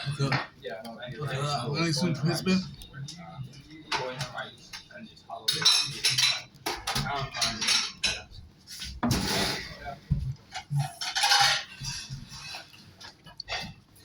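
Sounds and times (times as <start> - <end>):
cutlery clinking on a plate: 5.4 - 8.4, 10.5 - 12.8.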